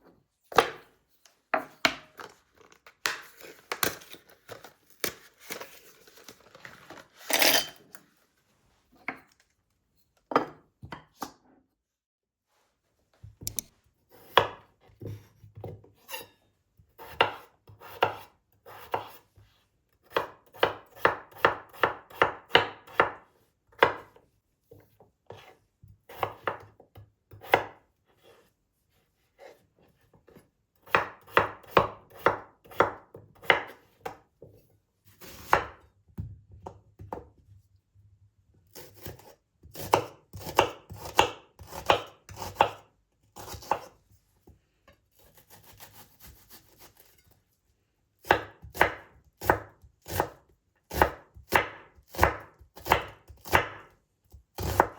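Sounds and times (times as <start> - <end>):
knife chopping on cutting board: 0.5 - 0.9, 13.4 - 16.2, 17.0 - 19.2, 20.0 - 27.8, 30.8 - 34.2, 35.4 - 35.8, 38.7 - 42.8, 43.4 - 43.9, 48.2 - 53.9, 54.6 - 54.9.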